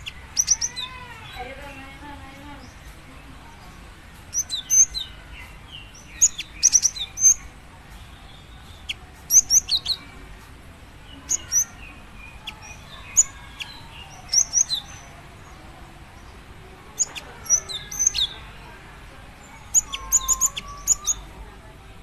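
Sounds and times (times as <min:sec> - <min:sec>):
bird giving high sharp chirps: 0:00.0 - 0:01.0, 0:05.8 - 0:07.5, 0:08.8 - 0:10.0, 0:12.4 - 0:15.1, 0:17.0 - 0:18.5, 0:19.6 - 0:21.3.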